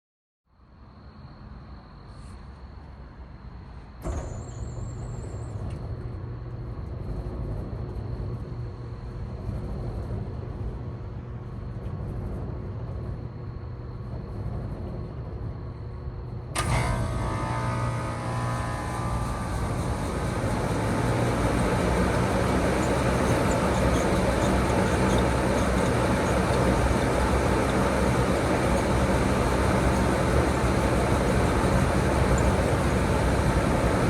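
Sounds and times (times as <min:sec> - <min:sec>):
air conditioner humming: 0:05.0 - 0:34.0.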